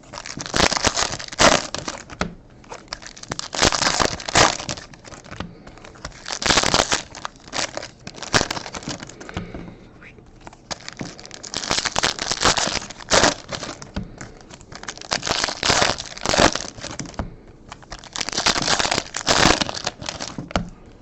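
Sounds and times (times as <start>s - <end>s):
foil wrappers tearing and crinkling: 0.0s - 9.4s, 10.5s - 20.6s.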